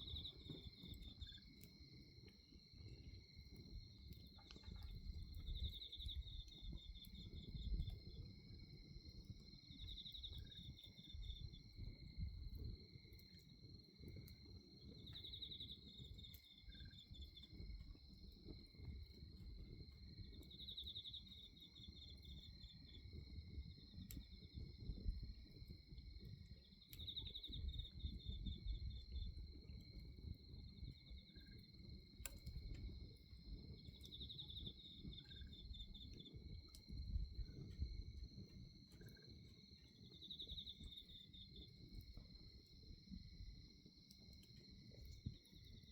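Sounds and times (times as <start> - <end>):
bonfire rustling and crackling: 0.0 - 8.9
night insects trilling: 0.0 - 45.9.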